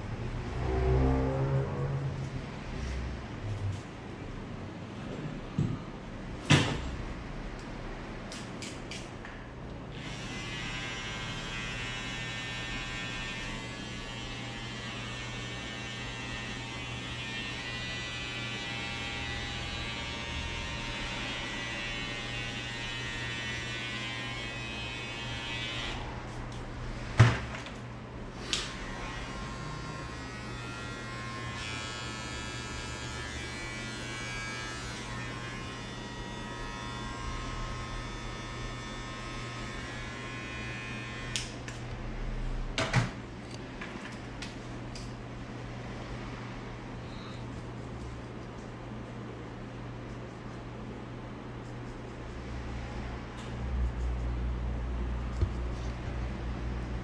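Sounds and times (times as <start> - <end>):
electric hair clippers buzzing: 10.0 - 26.1, 28.6 - 41.6.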